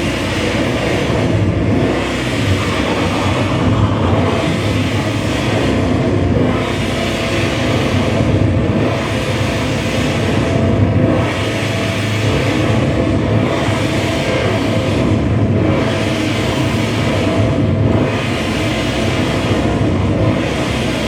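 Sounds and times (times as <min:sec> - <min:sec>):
distorted electronic noise music: 0:01.6 - 0:07.2.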